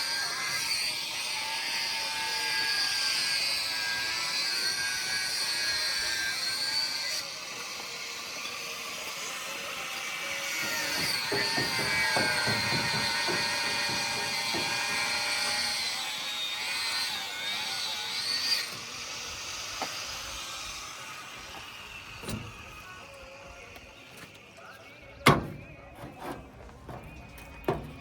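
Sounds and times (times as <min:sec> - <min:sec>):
power tool whining: 0:00.0 - 0:28.0
knocks on formwork: 0:10.9 - 0:15.2.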